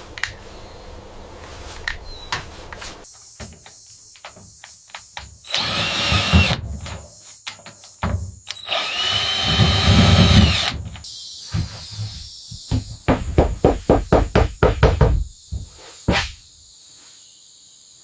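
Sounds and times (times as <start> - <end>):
power tool motor whine: 5.5 - 6.6, 8.5 - 10.8.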